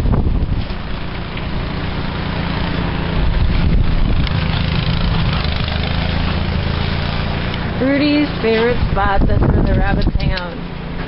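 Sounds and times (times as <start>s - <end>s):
wind on microphone: 0.0s - 2.2s, 2.8s - 10.6s
small engine humming: 0.0s - 11.0s.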